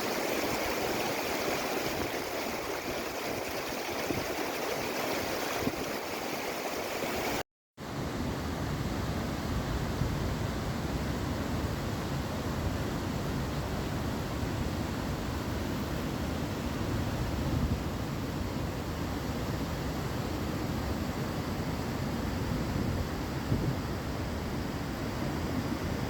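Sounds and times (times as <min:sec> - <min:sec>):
river water rushing: 0:00.0 - 0:07.4.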